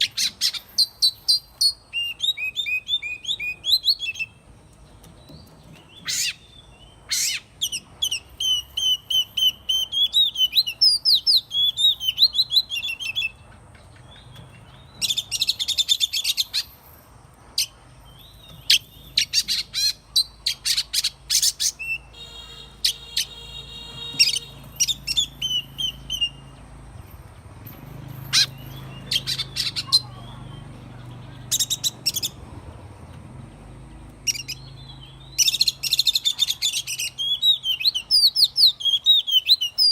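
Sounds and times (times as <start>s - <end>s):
bird singing whistles and rattles: 7.1s - 13.4s, 24.0s - 30.2s.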